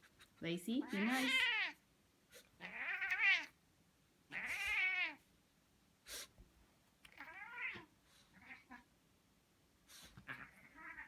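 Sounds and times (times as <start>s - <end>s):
cat meowing: 0.8s - 1.8s, 2.6s - 3.6s, 4.3s - 5.2s, 7.1s - 8.9s, 10.3s - 11.0s.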